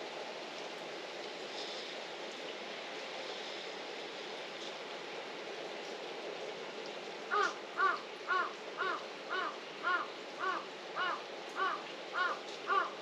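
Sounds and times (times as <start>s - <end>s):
falling rain hiss: 0.0s - 13.0s
bird calling: 7.3s - 13.0s.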